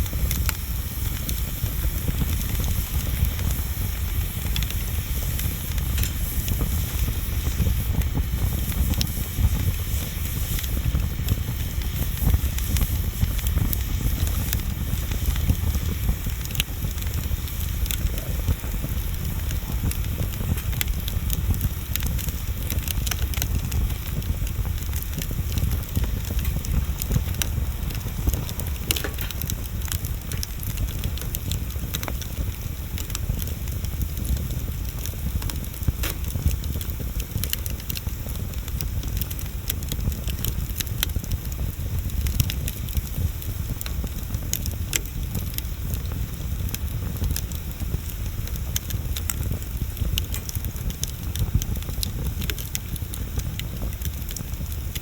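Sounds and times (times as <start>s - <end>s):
bonfire crackling and popping: 0.0s - 55.0s.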